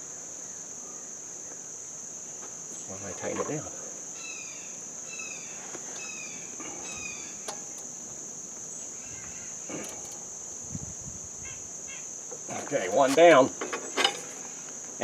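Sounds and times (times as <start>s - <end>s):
insect trilling: 2.7s - 14.6s
bird chirping: 4.2s - 9.6s
faint clicks and knocks: 5.7s - 8.8s.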